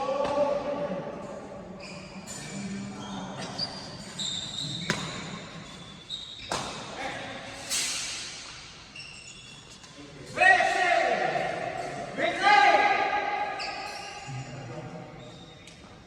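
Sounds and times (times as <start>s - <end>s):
shoe squeaks on court: 1.8s - 6.9s, 7.7s - 10.0s, 13.5s - 16.0s
racket striking shuttlecock: 6.5s - 6.9s.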